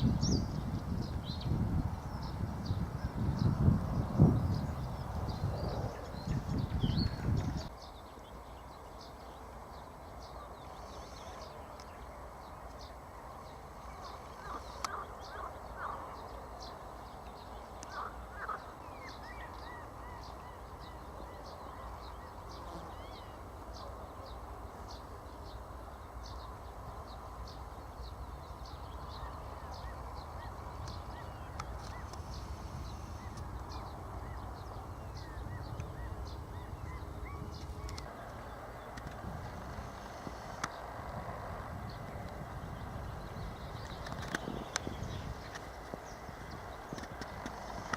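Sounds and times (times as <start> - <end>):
background hiss: 0.0 - 47.9
harsh lower bird calls: 13.9 - 16.7, 17.8 - 23.4.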